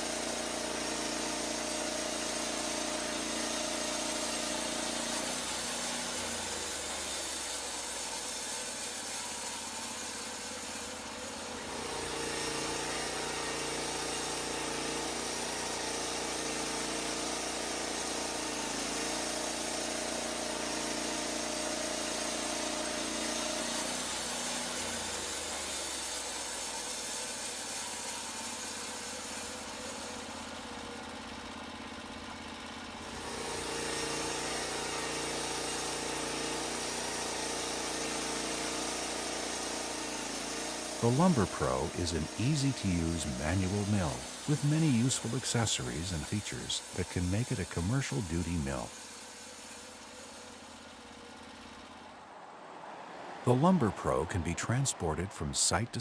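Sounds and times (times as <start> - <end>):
sawmill engine drone: 0.0 - 56.0
band blade sawing hiss: 33.4 - 51.0.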